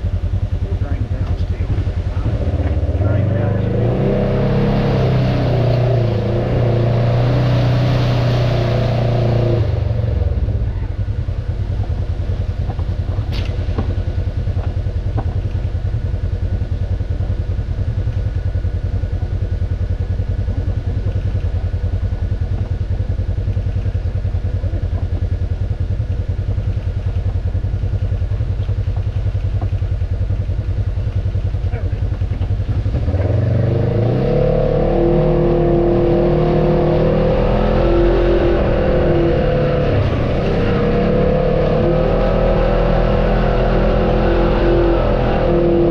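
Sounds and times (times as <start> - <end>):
off-road vehicle engine: 0.0 - 45.9.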